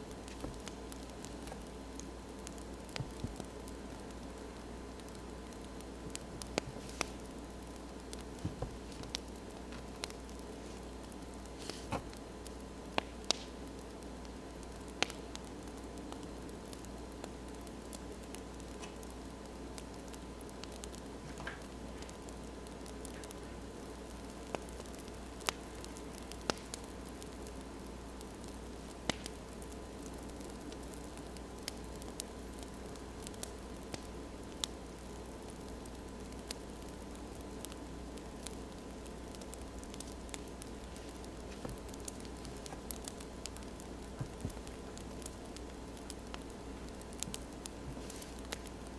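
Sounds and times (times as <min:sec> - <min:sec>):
crackling wood fire: 0:00.0 - 0:48.9.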